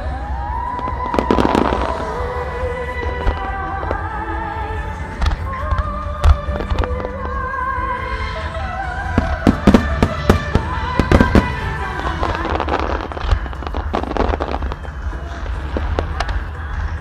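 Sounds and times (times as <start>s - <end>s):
music with wavering melody: 0.0s - 17.0s
fireworks bangs and pops: 0.9s - 2.2s, 9.2s - 17.0s.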